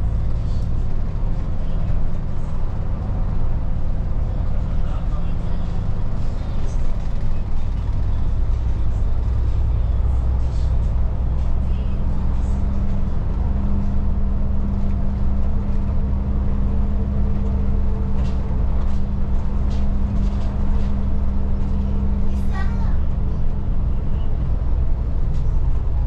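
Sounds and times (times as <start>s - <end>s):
bus engine drone: 0.0s - 26.0s.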